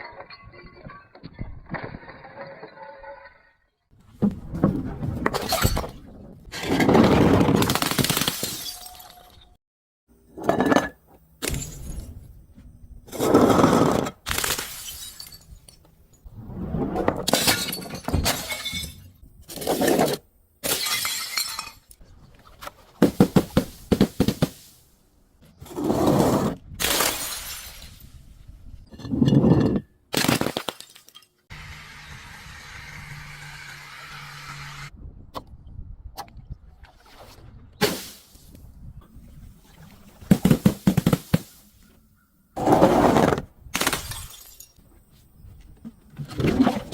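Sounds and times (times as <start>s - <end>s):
glass bottles breaking: 8.0s - 9.5s, 14.4s - 15.7s, 17.3s - 19.2s, 20.6s - 22.0s, 26.8s - 28.1s, 43.8s - 44.8s.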